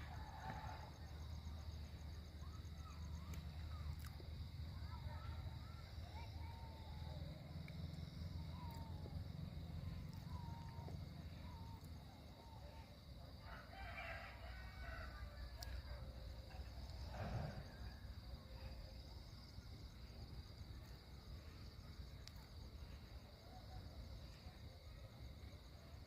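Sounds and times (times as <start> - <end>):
rooster crowing: 13.4 - 15.3.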